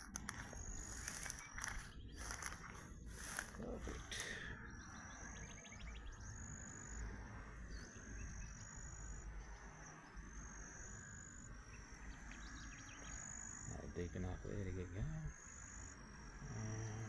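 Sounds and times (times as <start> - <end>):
rapid ticking trill: 0.0 - 3.8
high whistling wildlife calls: 0.0 - 17.0.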